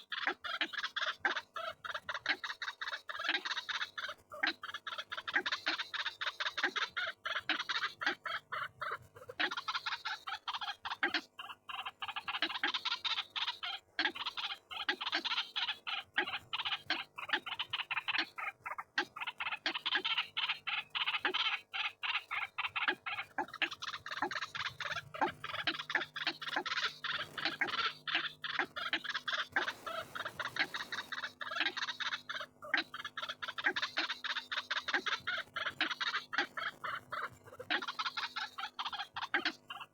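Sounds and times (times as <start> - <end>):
waterhens croaking: 11.8 - 39.9.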